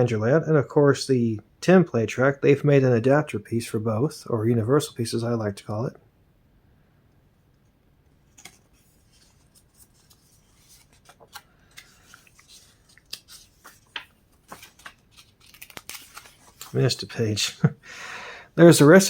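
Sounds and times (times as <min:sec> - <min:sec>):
paper pages rustling: 0:08.3 - 0:17.6.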